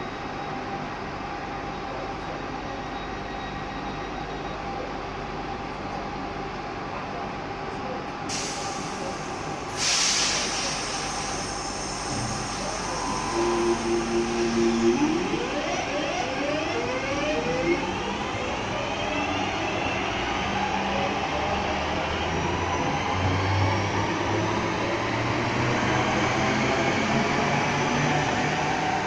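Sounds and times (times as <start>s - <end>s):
train rumble: 4.8s - 29.0s
train traction drive whine: 10.6s - 29.0s.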